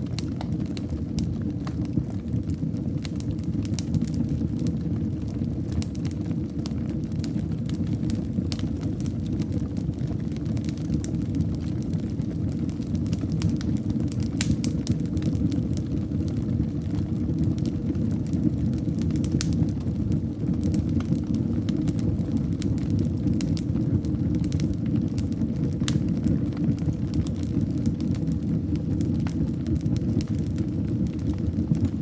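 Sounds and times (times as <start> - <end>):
fire crackles and pops: 0.0 - 32.0
low rumble of flames: 0.0 - 32.0.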